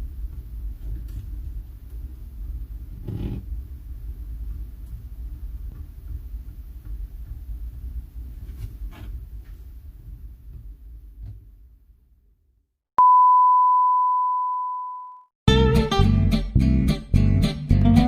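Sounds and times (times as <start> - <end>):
loud steady high beep: 13.0 - 15.3.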